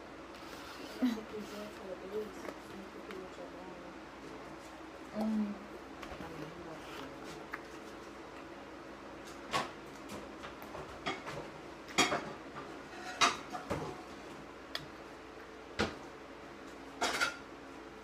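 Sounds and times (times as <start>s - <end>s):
faint room hum: 0.0s - 18.0s.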